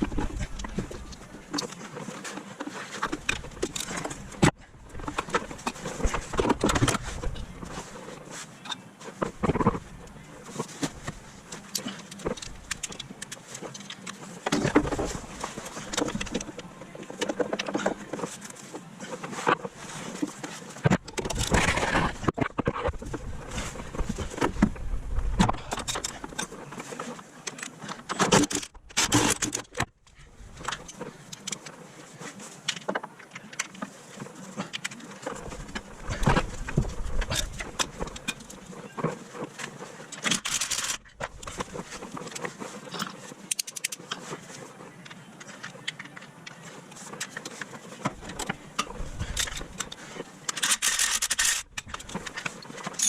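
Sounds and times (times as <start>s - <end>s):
metal tools clinking and rattling: 48.2s - 53.0s.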